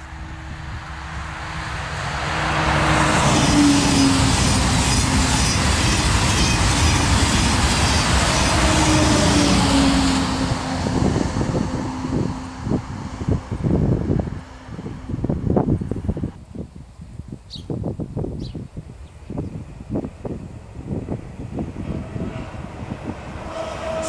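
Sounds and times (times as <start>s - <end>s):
train wheels clattering on rails: 4.0s - 9.5s.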